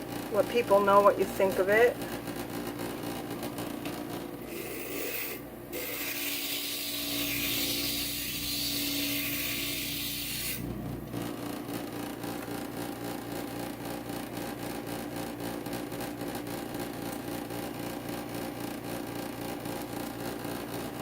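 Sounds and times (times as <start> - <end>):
glass grinder grinding glass: 4.4 - 10.7.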